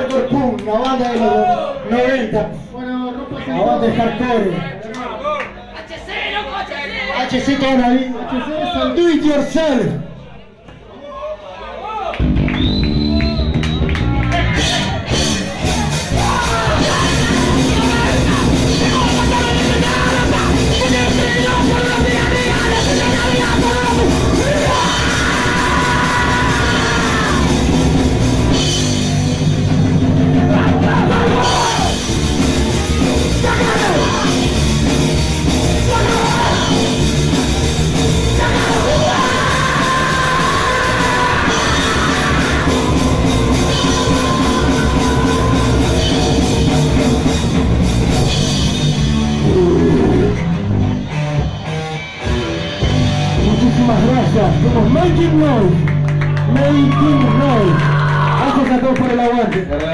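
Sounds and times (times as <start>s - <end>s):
punk band playing live: 12.2s - 59.3s
shouted lead vocal: 14.4s - 28.7s, 30.2s - 47.7s, 49.2s - 50.7s, 56.5s - 59.0s.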